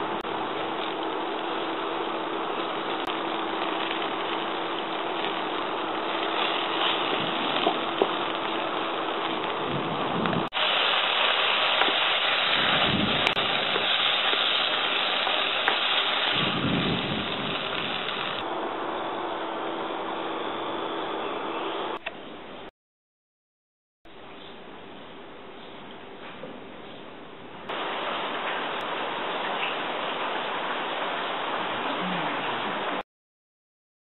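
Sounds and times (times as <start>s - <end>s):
food sizzling in hot oil: 0.0s - 18.4s.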